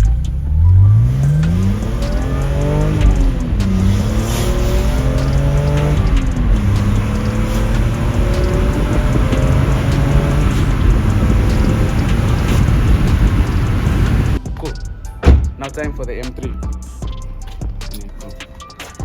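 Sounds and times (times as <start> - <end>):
car engine accelerating hard: 0.0 - 14.4.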